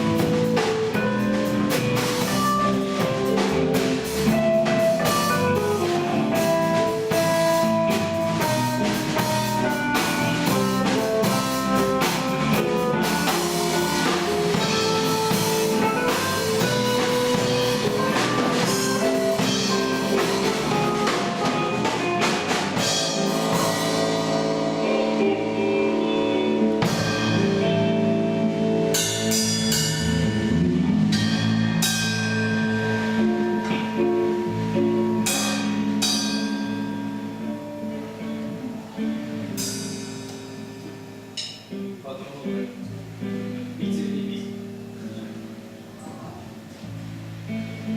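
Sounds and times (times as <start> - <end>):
band playing a song: 0.0 - 47.9.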